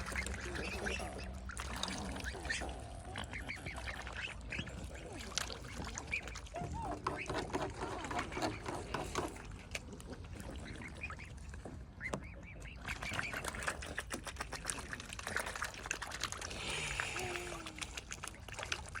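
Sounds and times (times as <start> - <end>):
ducks calling: 0.0 - 9.6, 10.2 - 14.0.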